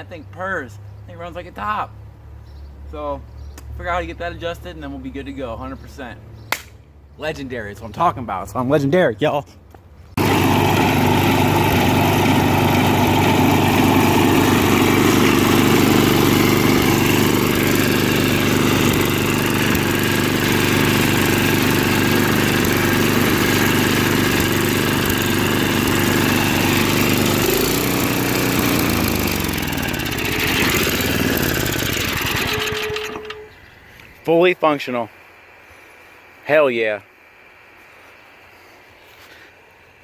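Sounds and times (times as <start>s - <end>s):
small snowblower engine running: 10.2s - 33.6s.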